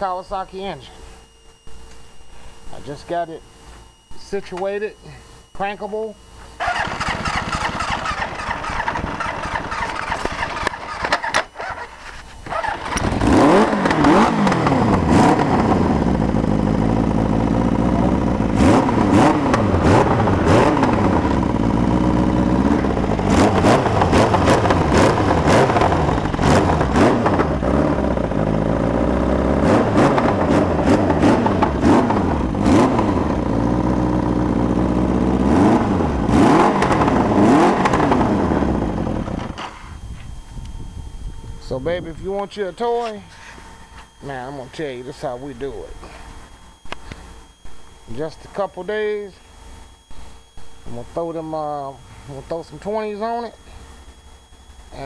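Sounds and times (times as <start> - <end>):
atv engine revving: 6.6 - 39.6.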